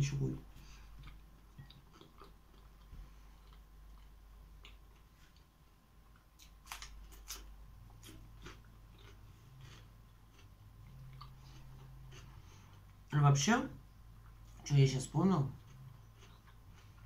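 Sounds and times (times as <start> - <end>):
person chewing: 0.6 - 13.1, 15.5 - 17.0.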